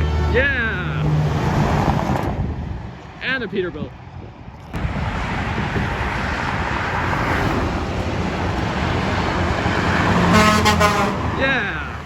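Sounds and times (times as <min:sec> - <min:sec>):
truck diesel engine rumble: 0:00.0 - 0:12.0
tyre road noise: 0:00.0 - 0:12.0.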